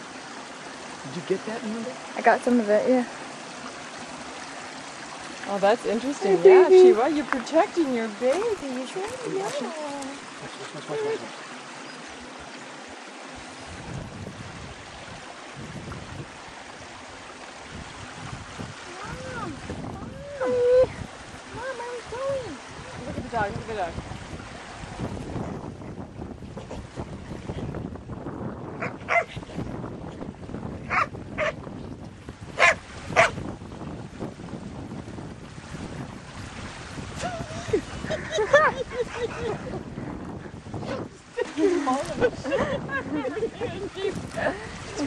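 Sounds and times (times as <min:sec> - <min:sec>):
low wind buffeting gusts: 0:00.0 - 0:45.0
wind hissing on microphone: 0:11.8 - 0:45.0
dog barking: 0:28.8 - 0:29.3, 0:30.9 - 0:31.6, 0:32.6 - 0:33.4.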